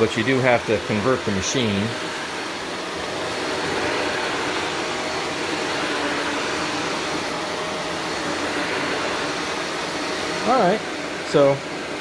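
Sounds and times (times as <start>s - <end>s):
upright vacuum running: 0.0s - 12.0s.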